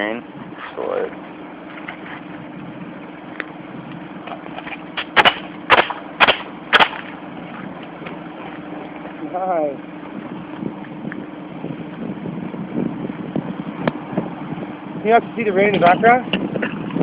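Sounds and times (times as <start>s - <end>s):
steady hum: 0.0s - 17.0s
nail gun firing: 5.0s - 7.1s.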